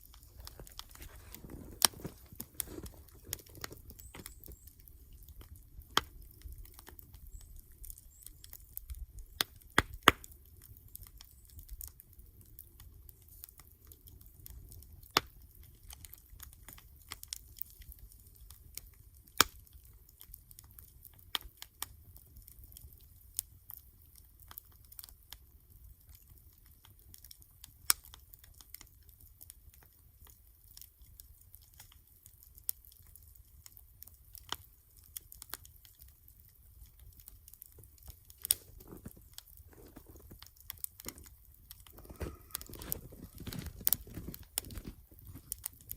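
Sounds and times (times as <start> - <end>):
sharp fire pops: 0.0 - 7.4, 8.4 - 10.4, 37.2 - 45.9
campfire crackling: 0.0 - 45.9.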